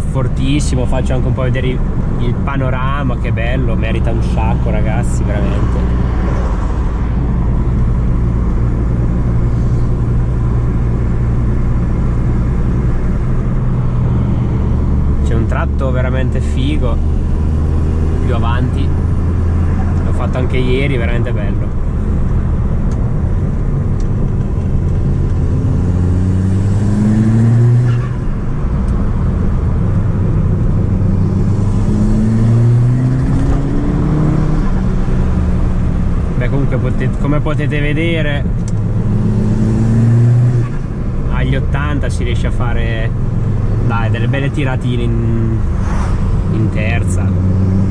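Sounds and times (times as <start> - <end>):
car engine droning: 0.0 - 47.9
road rumble: 0.0 - 47.9.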